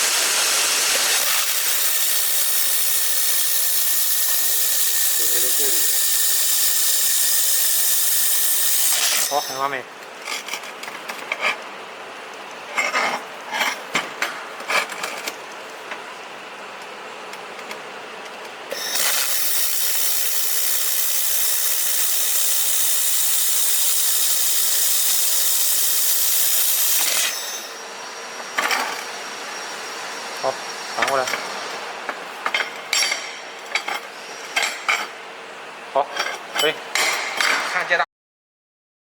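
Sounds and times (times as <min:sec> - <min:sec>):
laser welder hissing: 0:00.0 - 0:09.6, 0:18.9 - 0:27.4
metal workpieces clinking: 0:31.0 - 0:35.2, 0:36.1 - 0:37.8.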